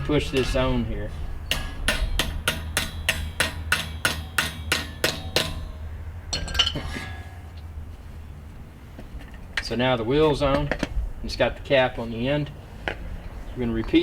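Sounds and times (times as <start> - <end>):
hammer tapping metal: 1.4 - 7.5.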